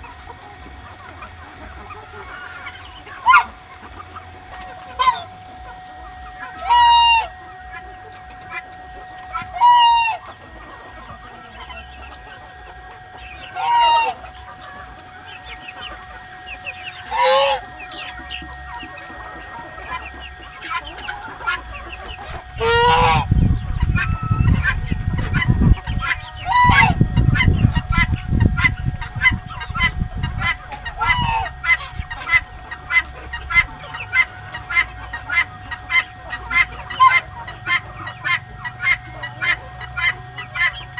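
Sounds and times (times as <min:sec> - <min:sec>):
geese chickens and guineafowl calling: 0:00.0 - 0:40.9
low rumble: 0:02.8 - 0:34.6.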